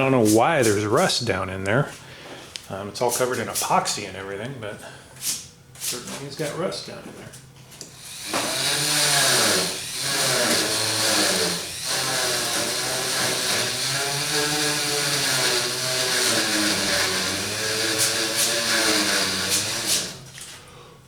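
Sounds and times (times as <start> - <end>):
rotary tool grinding metal: 7.9 - 20.3.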